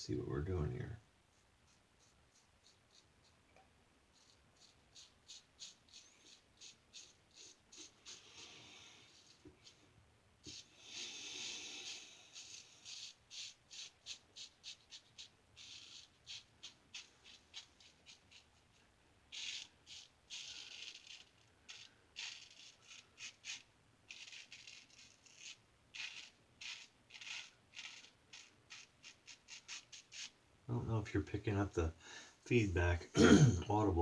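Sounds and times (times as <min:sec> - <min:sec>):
razor scraping stubble: 0:11.8 - 0:18.7, 0:19.4 - 0:31.8.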